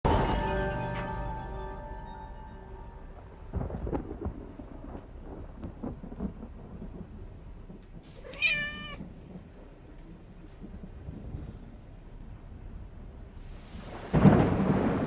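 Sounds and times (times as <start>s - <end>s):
thunder rumbling: 0.0s - 15.0s
rain: 0.1s - 15.0s
cat meowing: 8.2s - 9.0s.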